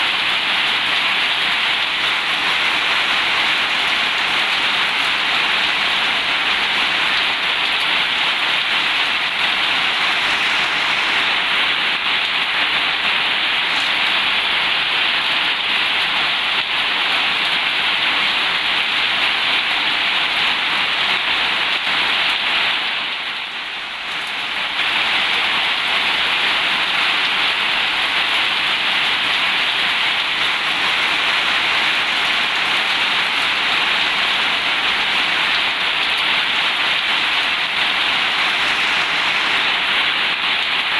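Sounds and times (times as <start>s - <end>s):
heavy rain hissing: 0.0s - 17.3s, 17.9s - 40.9s.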